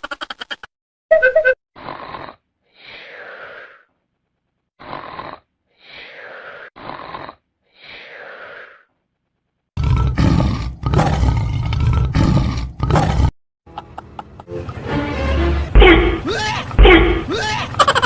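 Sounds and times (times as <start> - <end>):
person snoring: 1.8 - 3.9, 4.8 - 8.9.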